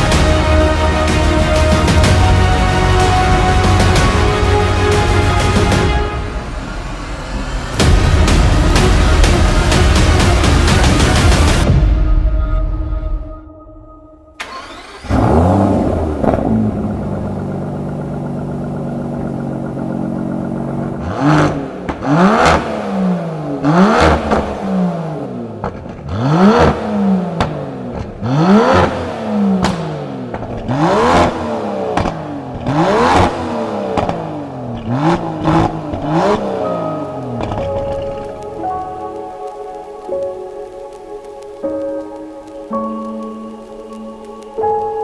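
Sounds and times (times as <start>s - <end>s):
car engine starting and idling: 0.0s - 12.1s, 14.3s - 45.0s
car engine revving: 14.4s - 39.6s.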